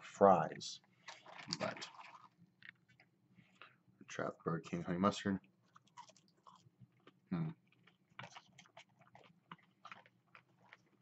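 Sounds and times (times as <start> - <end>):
person chewing food: 0.8 - 3.8, 5.4 - 11.0.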